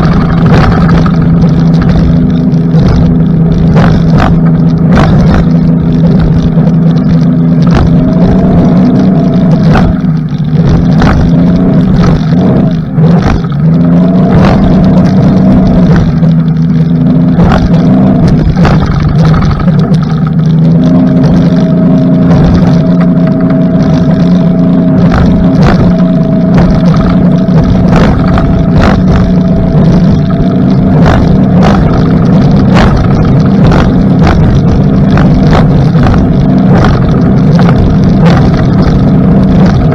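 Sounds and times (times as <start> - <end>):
outboard engine drone: 0.0 - 39.9.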